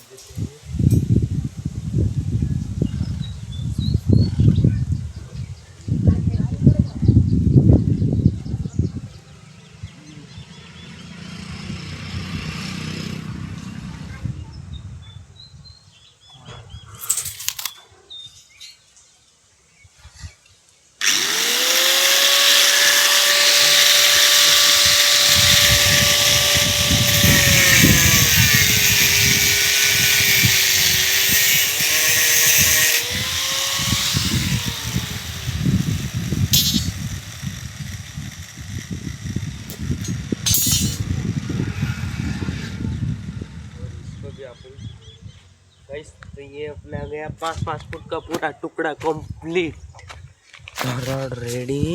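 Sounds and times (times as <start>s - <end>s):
handling sounds: 17.0s - 17.9s
power tool cutting steel: 21.0s - 44.2s.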